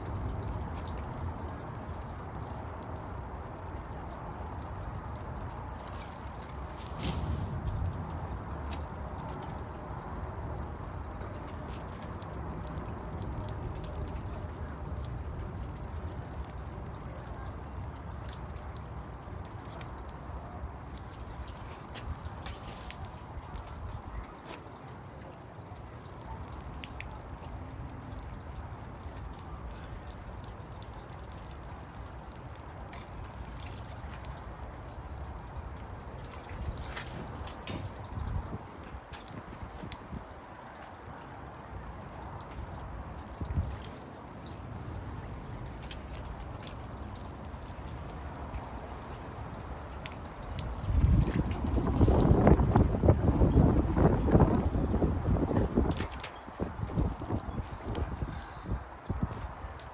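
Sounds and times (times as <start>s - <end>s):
water trickling and dripping: 0.0s - 59.9s
wind buffeting microphone: 36.5s - 40.3s, 50.4s - 59.6s.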